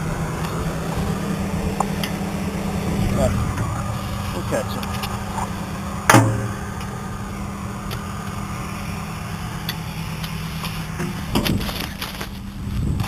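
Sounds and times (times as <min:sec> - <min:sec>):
tractor engine running: 0:00.0 - 0:13.0
sharp clunk: 0:06.1 - 0:06.6.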